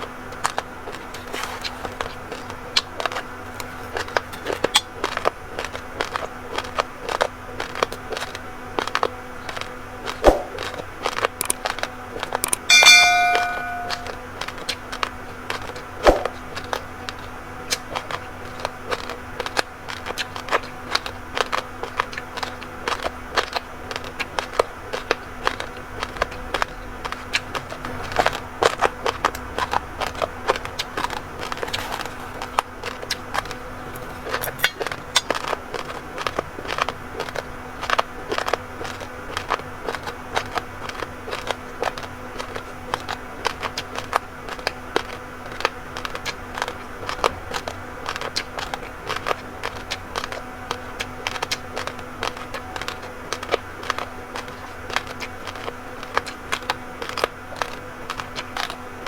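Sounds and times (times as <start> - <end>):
ringing ding: 12.5 - 14.2.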